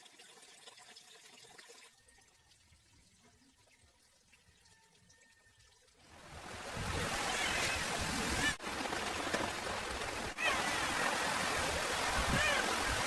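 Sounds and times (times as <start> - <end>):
water rushing: 6.0 - 13.0.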